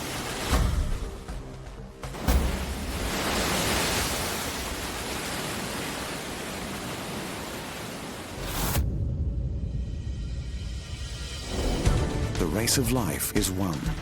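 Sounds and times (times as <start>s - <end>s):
surf rushing on shore: 0.0s - 0.9s, 2.1s - 8.5s.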